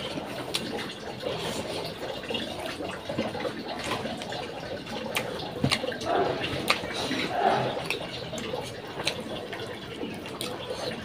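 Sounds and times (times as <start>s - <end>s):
wet chewing and lip smacking: 0.0s - 11.0s.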